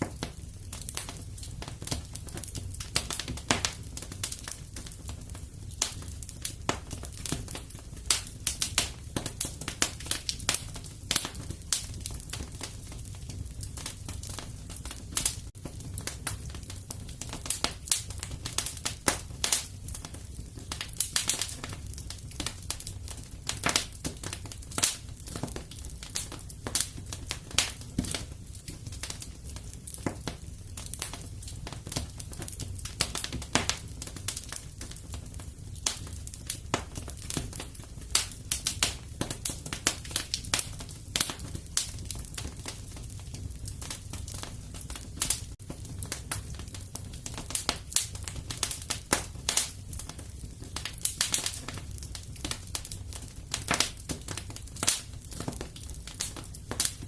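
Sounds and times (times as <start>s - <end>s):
burning wood popping and snapping: 0.0s - 57.0s
low rumble of fire: 0.0s - 57.0s.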